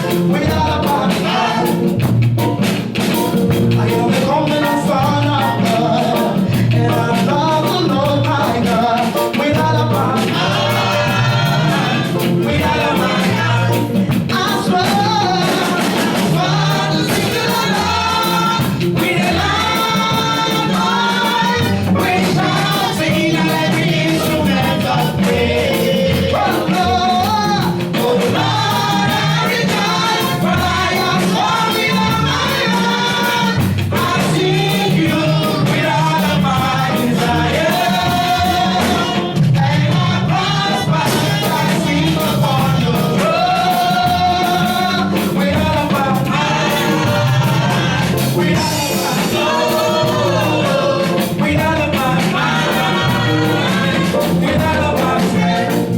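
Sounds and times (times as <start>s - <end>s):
band with bass and drums: 0.0s - 55.9s
singers singing gospel song: 0.0s - 55.9s.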